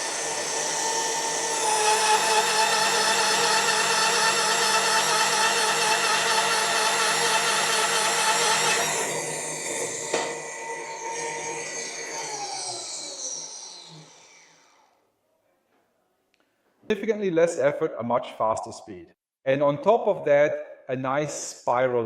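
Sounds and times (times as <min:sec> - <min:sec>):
drill motor whine: 0:00.0 - 0:14.9
drill scraping through steel: 0:00.0 - 0:14.9.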